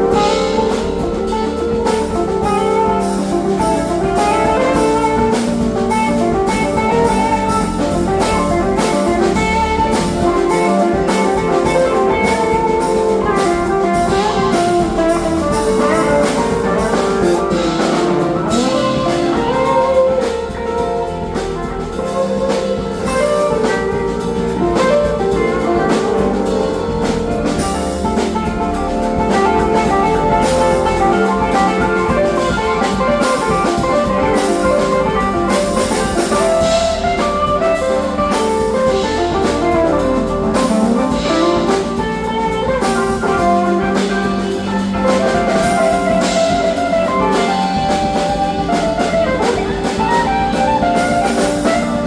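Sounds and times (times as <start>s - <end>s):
funk band playing: 0.0s - 52.0s.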